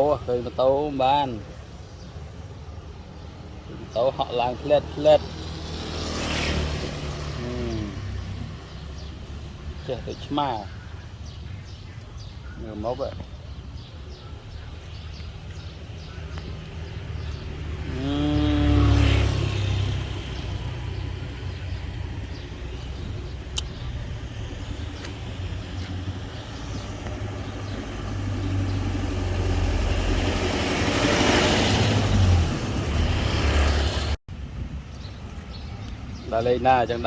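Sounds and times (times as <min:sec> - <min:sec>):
motor vehicle passing: 0:04.9 - 0:09.8, 0:15.5 - 0:34.2.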